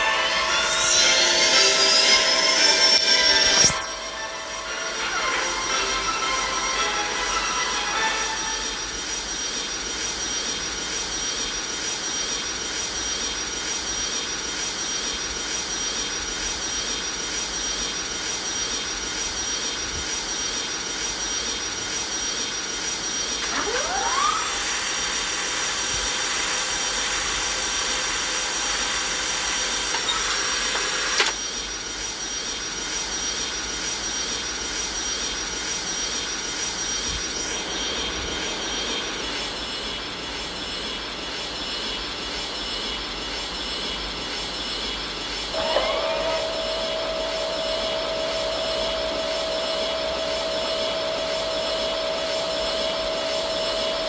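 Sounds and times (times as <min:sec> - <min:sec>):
higher tones: 0:00.0 - 0:08.9
rising whine: 0:00.0 - 0:10.2, 0:45.5 - 0:54.0
jet engines running: 0:00.0 - 0:32.0, 0:32.6 - 0:54.0.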